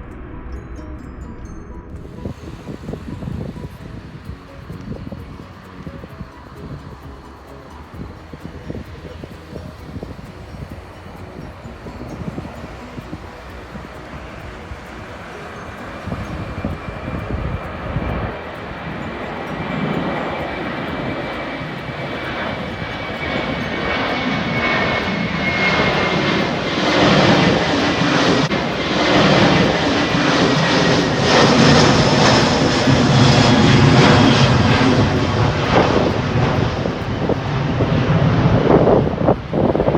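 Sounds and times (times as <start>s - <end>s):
jet airliner passing overhead: 2.0s - 39.9s.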